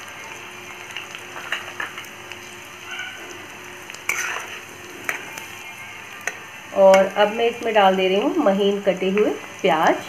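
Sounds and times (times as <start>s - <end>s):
garlic sizzling in hot oil: 0.0s - 10.0s
metal spatula scraping pan: 4.0s - 5.2s.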